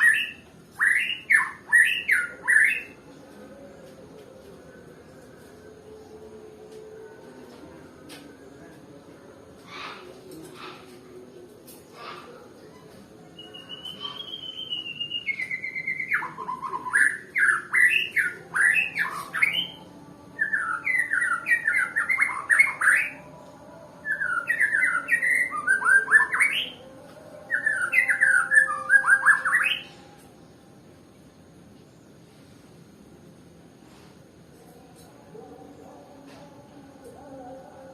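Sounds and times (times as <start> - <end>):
bird whistling song: 0.0 - 3.0, 13.4 - 19.8, 20.4 - 23.2, 24.0 - 26.8, 27.5 - 30.0.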